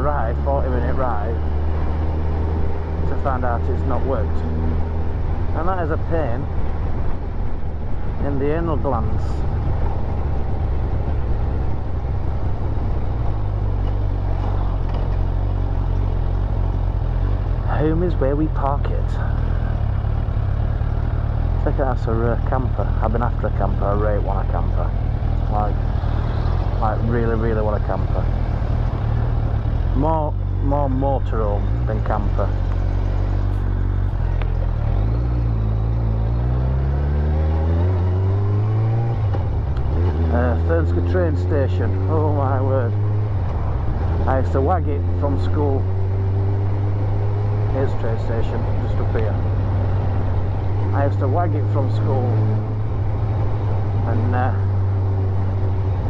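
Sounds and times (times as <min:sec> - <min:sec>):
road noise: 0:00.0 - 0:56.0
motorcycle engine running: 0:09.3 - 0:38.1.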